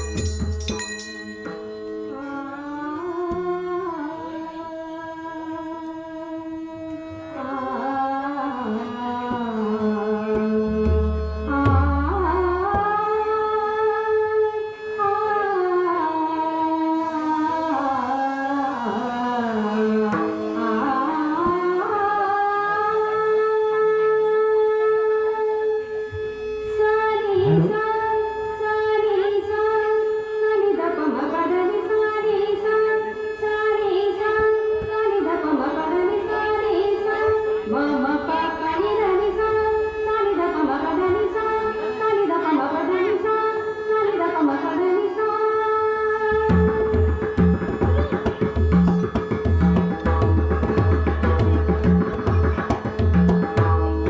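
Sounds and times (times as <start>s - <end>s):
instrumental accompaniment: 0.0s - 15.0s, 17.0s - 23.8s, 46.2s - 54.0s
women singing devotional song: 2.2s - 10.8s, 11.5s - 25.6s, 26.7s - 47.2s.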